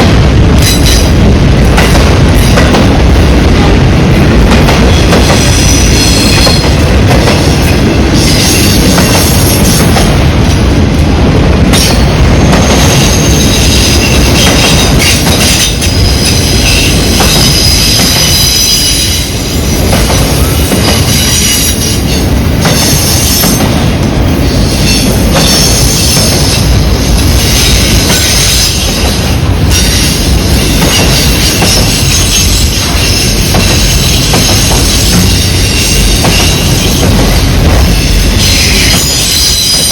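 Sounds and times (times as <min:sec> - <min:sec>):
freight cars rumbling on rails: 0:00.0 - 0:39.9
wheel squeal: 0:38.4 - 0:39.9.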